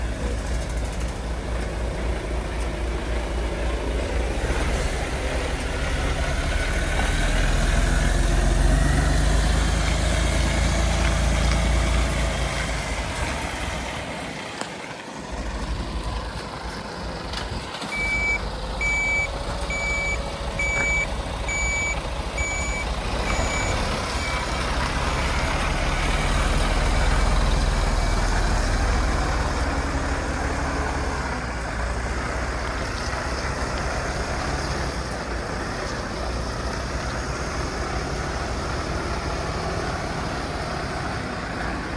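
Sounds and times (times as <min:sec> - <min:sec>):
truck diesel engine running: 0:00.0 - 0:41.9
reversing alarm beeping: 0:17.8 - 0:25.5.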